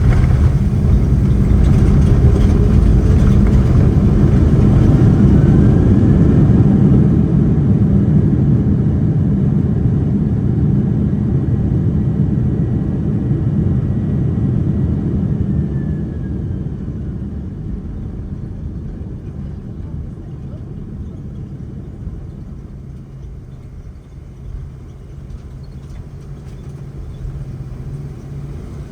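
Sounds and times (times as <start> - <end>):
faint whine sliding down: 0.0 - 8.3
aircraft engines and gear rumbling: 0.0 - 28.9.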